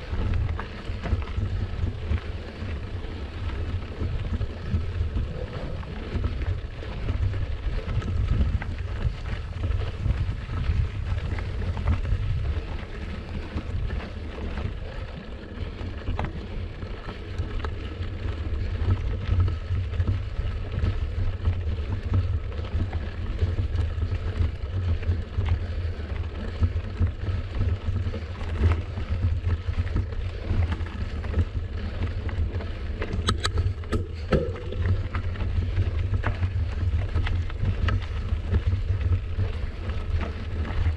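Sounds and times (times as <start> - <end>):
wind buffeting microphone: 0.0 - 15.1, 28.7 - 40.9
sharp ticks: 33.2 - 35.0.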